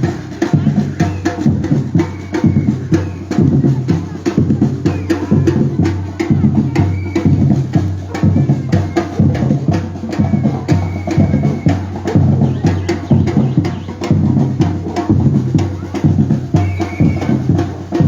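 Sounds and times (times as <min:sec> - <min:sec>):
deep bass drum beats: 0:00.0 - 0:18.0.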